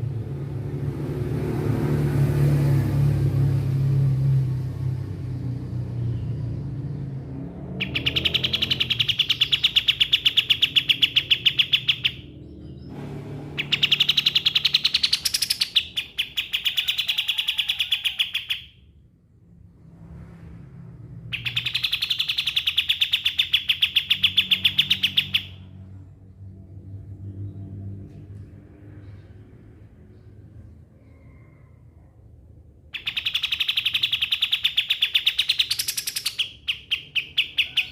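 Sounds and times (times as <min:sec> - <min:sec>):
songbird rapid trills: 0:07.8 - 0:12.2.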